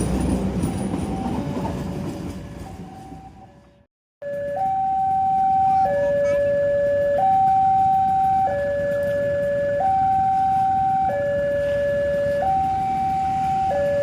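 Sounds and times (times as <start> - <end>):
electronic two-tone warning siren: 4.2 - 14.0.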